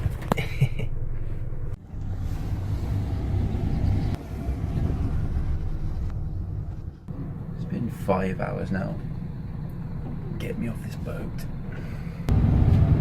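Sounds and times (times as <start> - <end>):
ferry engines droning: 0.0 - 13.0.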